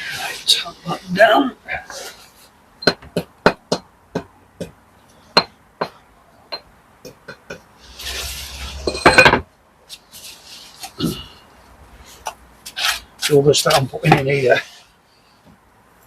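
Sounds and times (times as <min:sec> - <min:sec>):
trowel scrape: 0:07.9 - 0:09.2, 0:12.7 - 0:13.4.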